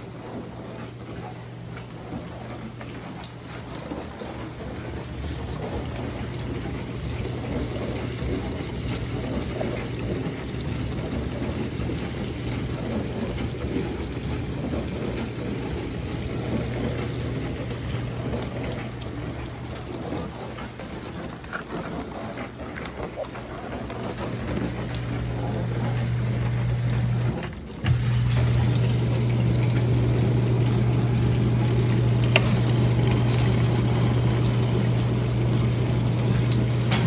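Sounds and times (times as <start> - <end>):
dishwasher motor hum: 0.0 - 37.0
water spraying and sloshing: 0.0 - 37.0.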